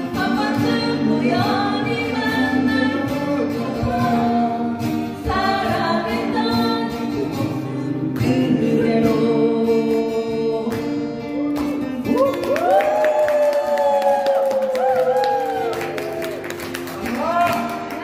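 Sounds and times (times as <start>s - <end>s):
group of singers singing: 0.0s - 12.2s.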